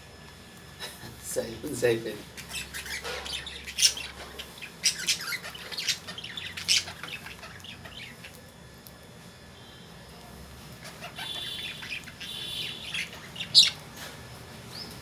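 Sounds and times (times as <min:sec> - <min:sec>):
lovebirds squawking and chirping: 0:02.3 - 0:08.4, 0:10.8 - 0:14.1.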